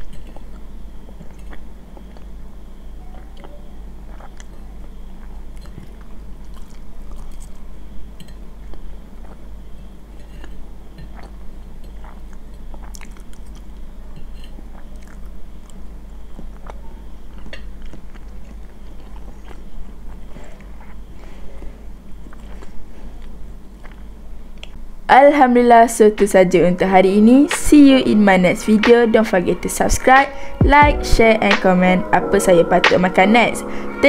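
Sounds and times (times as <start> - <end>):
chewing and mouth sounds: 0.0 - 24.8
steady low hum: 0.0 - 34.0.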